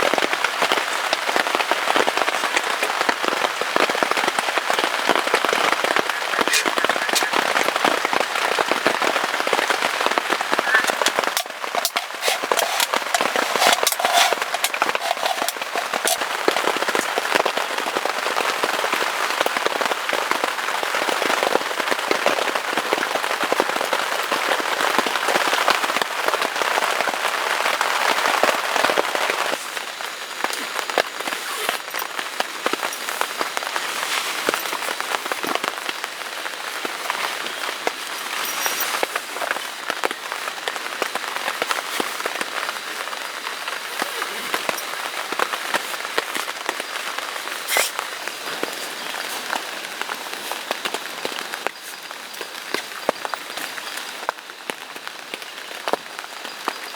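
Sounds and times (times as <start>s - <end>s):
heavy rain falling: 0.0s - 13.8s.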